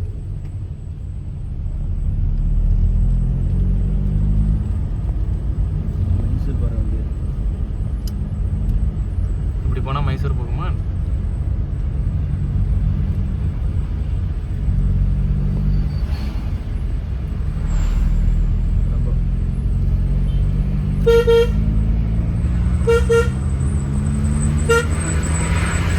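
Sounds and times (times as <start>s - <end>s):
bus diesel engine labouring: 0.0s - 25.9s
bus horn toots: 20.3s - 21.8s, 22.8s - 23.8s, 24.4s - 25.9s.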